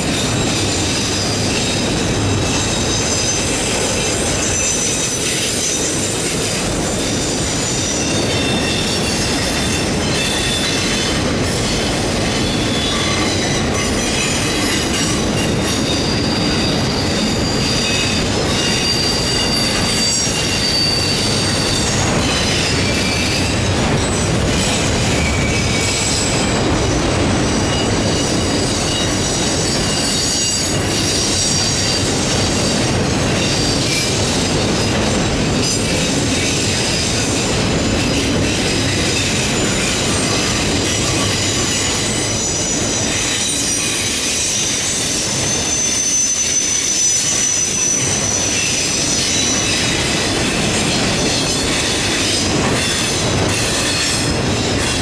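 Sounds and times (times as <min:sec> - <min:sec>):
steel wheels rumbling on rails: 0:00.0 - 0:55.0
high-pitched wheel squeal: 0:07.0 - 0:26.5, 0:38.0 - 0:50.1.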